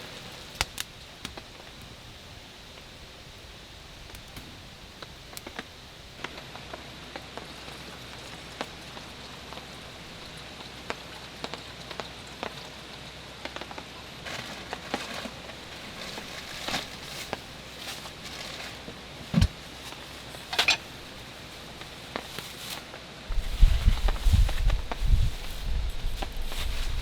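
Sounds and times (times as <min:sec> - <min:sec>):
soft rain hiss: 0:00.0 - 0:27.0
raindrops ticking on a surface: 0:04.1 - 0:19.0
noisy rustles: 0:14.1 - 0:27.0.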